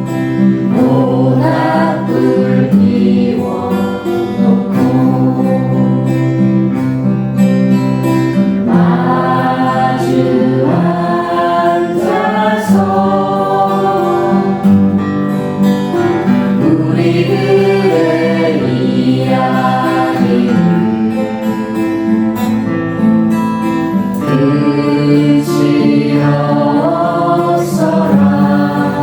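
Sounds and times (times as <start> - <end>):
person singing: 0.0 - 6.6, 8.6 - 14.8, 16.0 - 21.4, 24.2 - 29.0
acoustic guitar strumming: 0.0 - 29.0.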